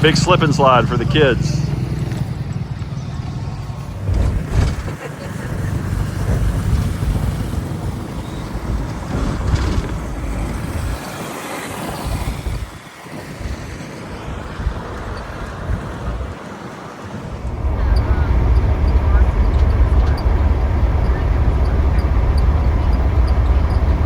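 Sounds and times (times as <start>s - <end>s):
vehicle rumble: 0.0s - 11.2s, 17.0s - 24.0s
wind buffeting microphone: 0.0s - 24.0s.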